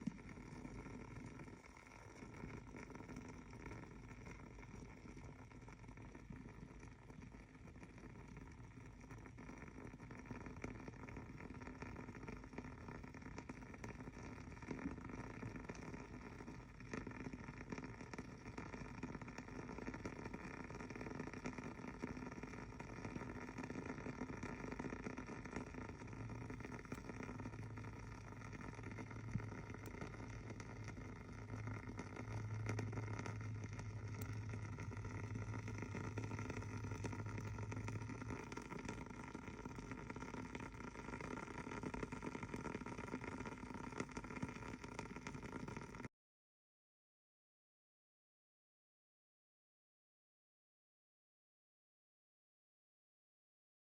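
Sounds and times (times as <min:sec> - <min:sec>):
candle crackling: 0:00.0 - 0:05.6, 0:19.3 - 0:45.7.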